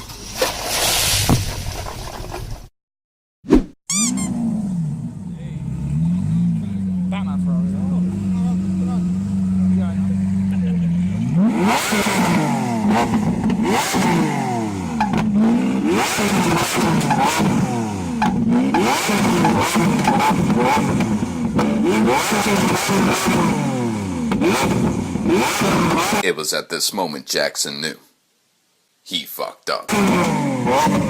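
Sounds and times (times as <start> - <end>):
engine revving with loud exhaust: 4.0 - 26.2, 29.9 - 31.0
exhaust cracks: 5.0 - 26.2, 29.9 - 31.0.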